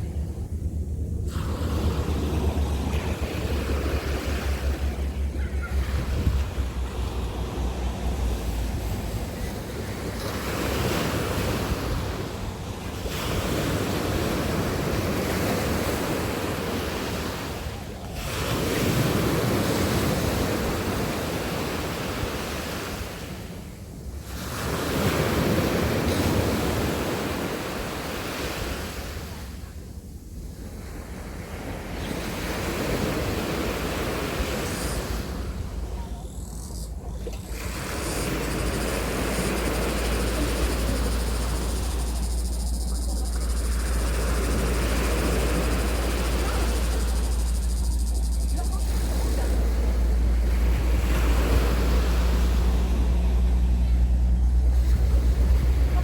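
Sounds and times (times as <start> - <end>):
sea waves breaking on beach: 0.0 - 56.0
wind buffeting microphone: 0.0 - 56.0.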